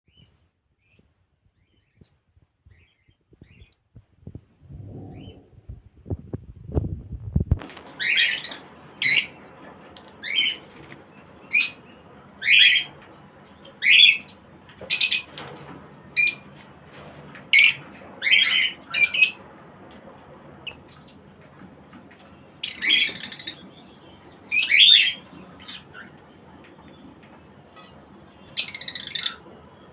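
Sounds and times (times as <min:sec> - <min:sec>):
lovebirds squawking and chirping: 0:07.8 - 0:09.4, 0:13.6 - 0:15.3, 0:17.6 - 0:19.4, 0:22.6 - 0:26.2, 0:26.9 - 0:29.5.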